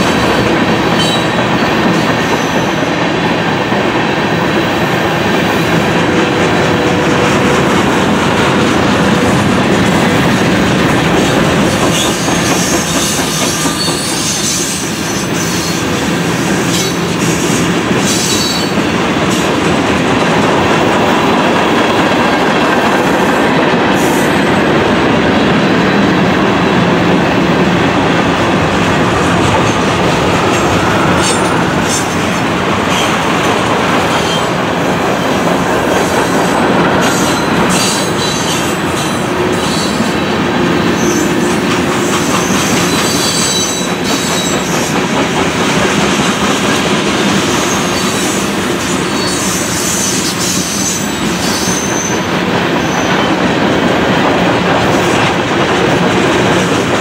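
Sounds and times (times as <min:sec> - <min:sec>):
wheels clacking over rail joints: 0:00.0 - 0:24.1, 0:24.7 - 0:57.0
train wheels rumbling on rail: 0:00.0 - 0:57.0
high wheel squeals: 0:11.2 - 0:18.9, 0:35.2 - 0:44.9, 0:47.4 - 0:53.4.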